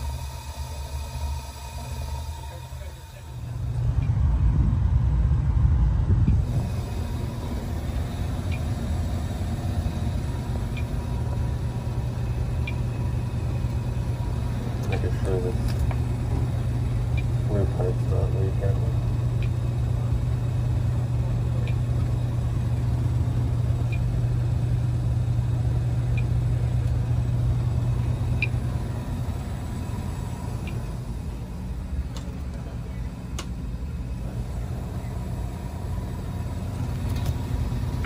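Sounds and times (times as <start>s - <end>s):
gas furnace rumbling: 0.0s - 38.0s
faint ticking: 6.2s - 31.4s.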